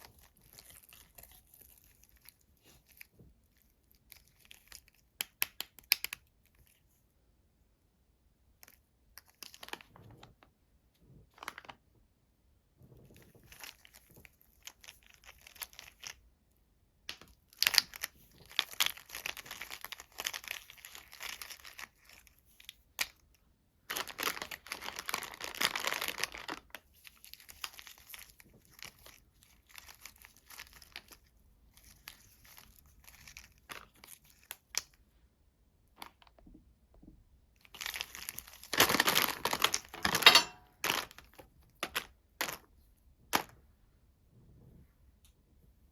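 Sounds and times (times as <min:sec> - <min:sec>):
candy wrapper crinkling and tearing: 0:00.0 - 0:06.8, 0:08.6 - 0:10.0, 0:13.4 - 0:16.3, 0:17.1 - 0:35.1, 0:37.6 - 0:43.5.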